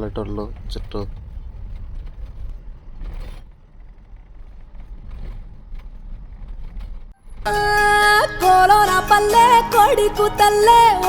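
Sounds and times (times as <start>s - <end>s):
truck engine and road rumble: 0.0s - 8.2s.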